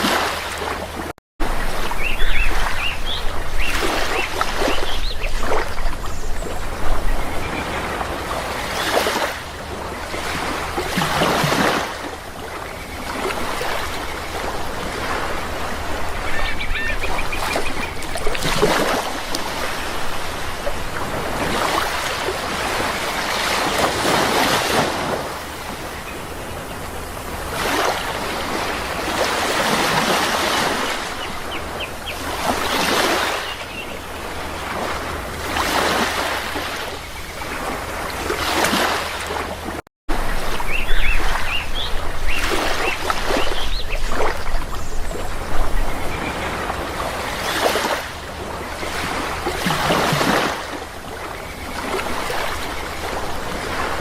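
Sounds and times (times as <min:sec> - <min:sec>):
sea waves washing ashore: 0:00.0 - 0:54.0.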